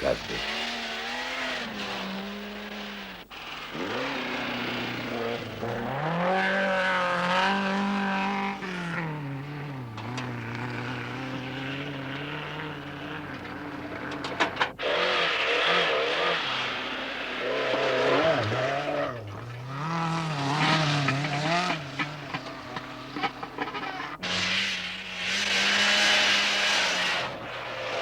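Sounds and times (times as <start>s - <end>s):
rally car engines revving: 0.0s - 28.0s.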